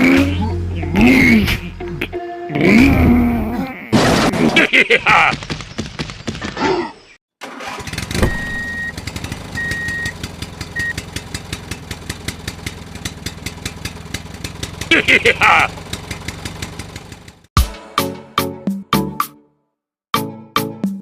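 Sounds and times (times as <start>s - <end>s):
small engine knocking: 8.9s - 17.5s.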